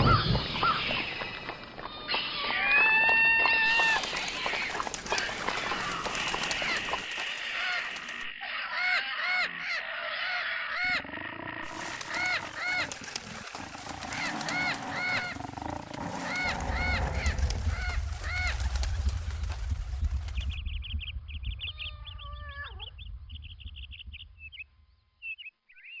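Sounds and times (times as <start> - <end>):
short arching animal calls: 3.6 - 18.8
long pitched animal call: 8.4 - 18.0.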